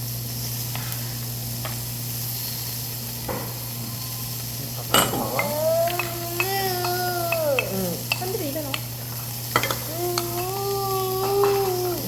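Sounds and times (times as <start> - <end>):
beef sizzling on grill: 0.0 - 12.0
high voice: 5.2 - 8.8, 9.8 - 12.0.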